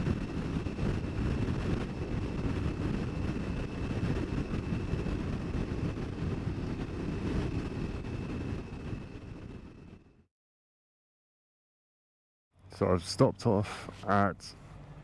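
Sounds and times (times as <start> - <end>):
wind buffeting and engine rumble: 0.0 - 10.2.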